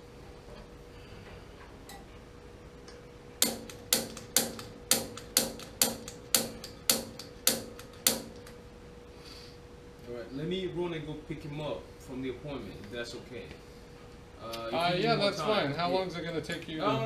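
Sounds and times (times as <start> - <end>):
faint steady hum: 0.0 - 17.0
piezo igniter clicking: 2.9 - 8.6.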